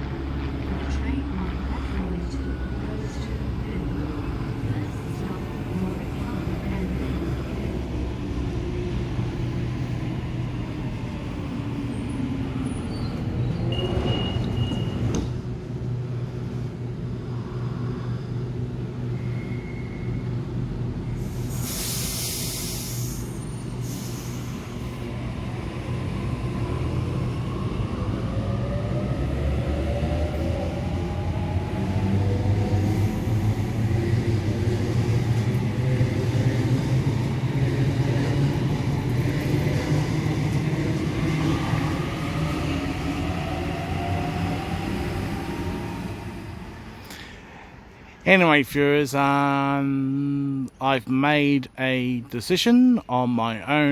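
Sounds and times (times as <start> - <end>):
train rumbling: 0.0 - 49.2
air hiss: 21.2 - 24.6.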